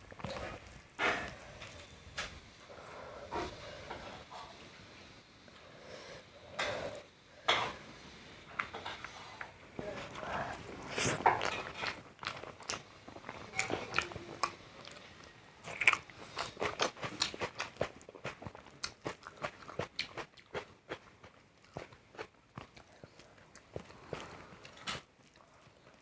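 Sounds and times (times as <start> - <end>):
chewing with mouth clicks: 8.6 - 26.0.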